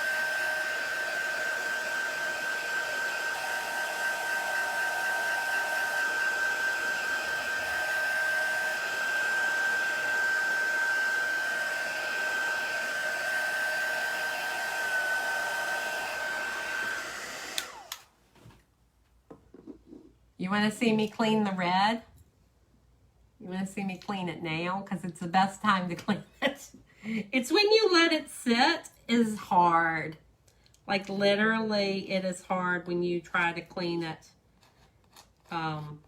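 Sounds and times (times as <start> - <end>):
hair dryer blowing: 0.0 - 18.2.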